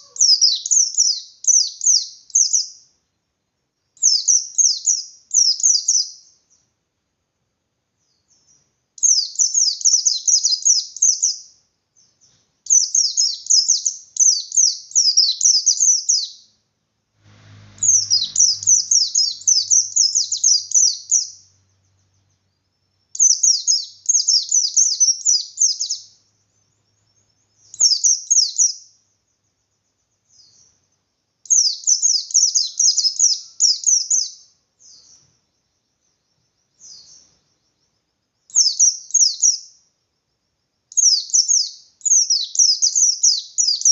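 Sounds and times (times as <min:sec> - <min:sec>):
white-eye singing: 0:17.6 - 0:22.3.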